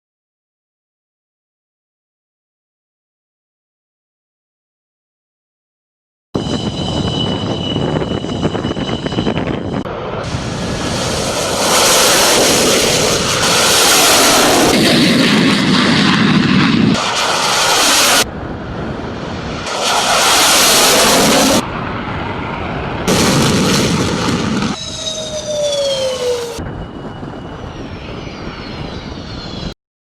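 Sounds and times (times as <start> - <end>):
falling jet whine: 6.4 - 29.8
loud jet roar: 6.4 - 29.8.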